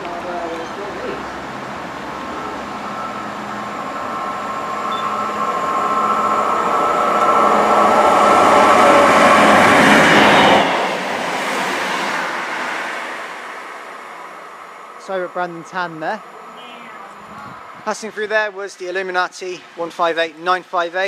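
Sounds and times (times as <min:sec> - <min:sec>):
diesel train passing at speed: 0:00.0 - 0:21.0
high whine: 0:01.6 - 0:11.6, 0:12.2 - 0:18.6.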